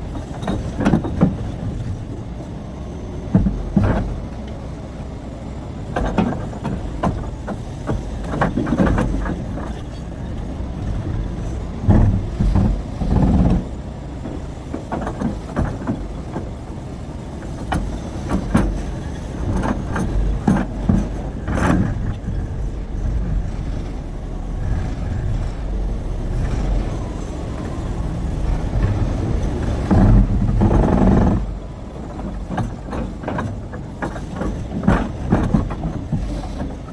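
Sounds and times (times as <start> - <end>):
excavator engine rumble: 0.0 - 36.9.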